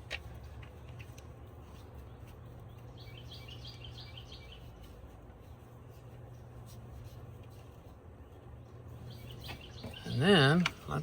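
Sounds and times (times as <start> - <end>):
low background hum: 0.0 - 11.0
small bird chirping: 1.6 - 4.9, 9.0 - 10.6.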